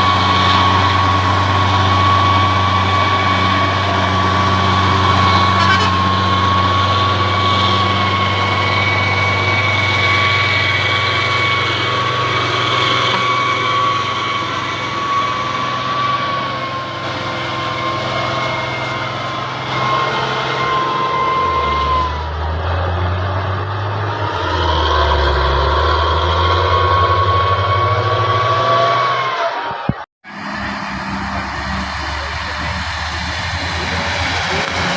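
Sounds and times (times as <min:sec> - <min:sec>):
heavy diesel truck engine: 0:00.0 - 0:34.9
high whine: 0:00.0 - 0:34.9.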